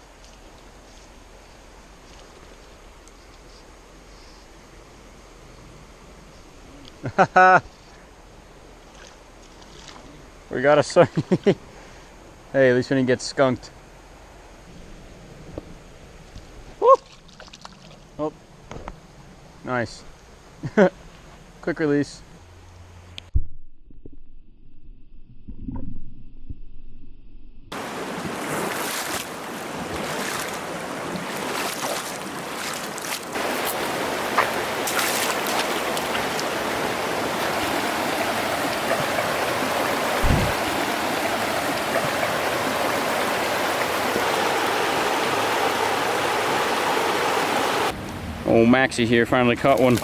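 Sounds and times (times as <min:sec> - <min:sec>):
rushing stream water: 0:27.8 - 0:48.4.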